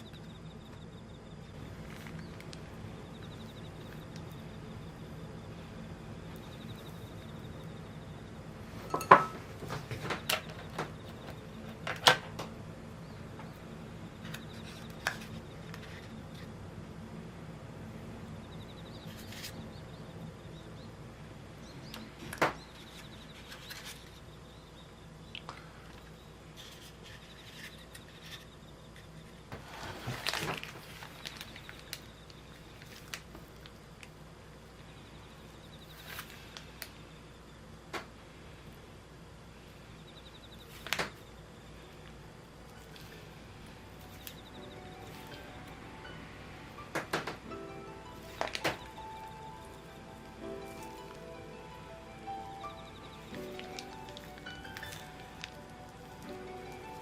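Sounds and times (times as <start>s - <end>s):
steady low hum: 0.0s - 57.0s
scrape or rustle: 29.6s - 31.2s.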